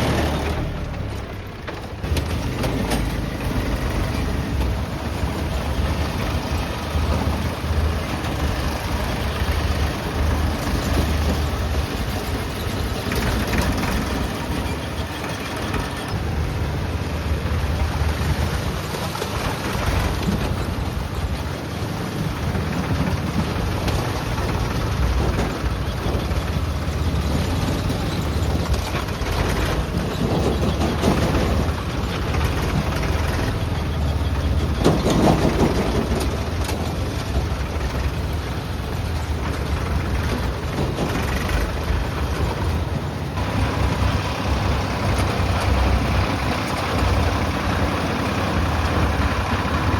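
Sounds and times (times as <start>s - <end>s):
heavy diesel engines running: 0.0s - 49.9s.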